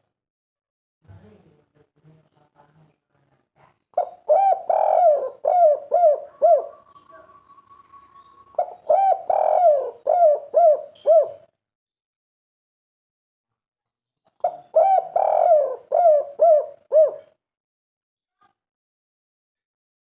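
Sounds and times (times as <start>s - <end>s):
dove cooing: 4.0s - 11.5s, 14.4s - 17.4s.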